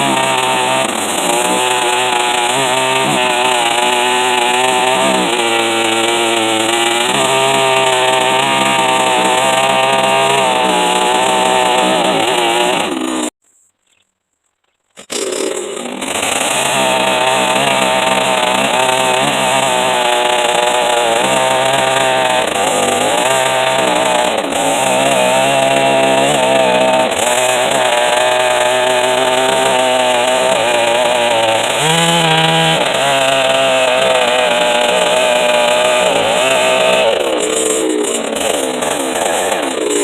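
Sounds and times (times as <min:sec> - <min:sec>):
chainsaw cutting wood: 0:00.0 - 0:13.4, 0:15.0 - 0:40.0.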